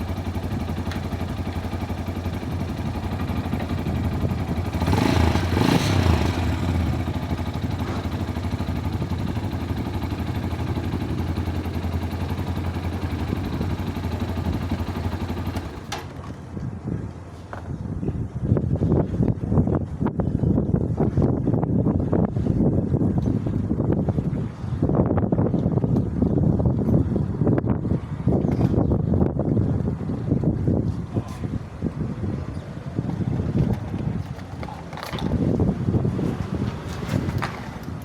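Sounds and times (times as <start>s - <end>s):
motorcycle engine running: 0.0s - 16.5s.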